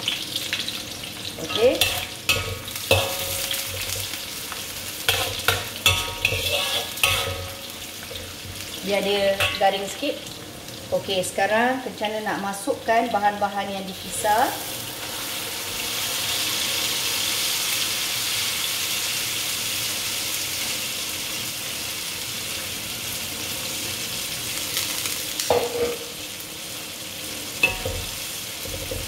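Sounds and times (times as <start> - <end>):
spice paste sizzling in oil: 0.0 - 29.0
stirring clatters: 1.4 - 4.2, 5.1 - 8.6.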